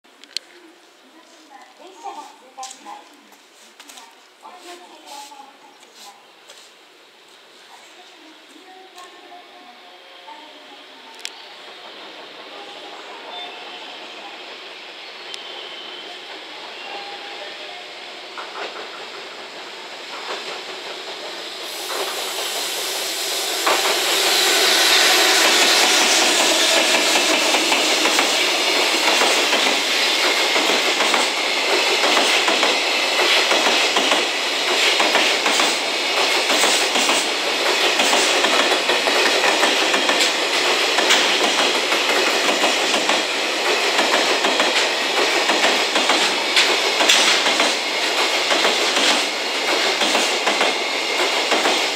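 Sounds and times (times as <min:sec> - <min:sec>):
freight train passing: 0:00.2 - 0:51.9
clickety-clack of train wheels: 0:18.2 - 0:51.9.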